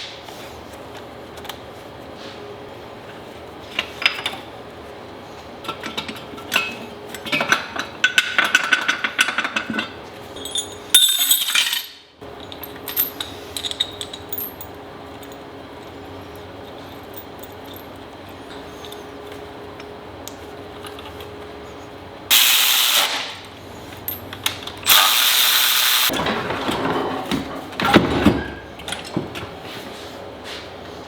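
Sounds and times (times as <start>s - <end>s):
metal tools clinking: 8.4s - 15.4s
hissing burst: 22.3s - 23.4s, 24.9s - 26.1s.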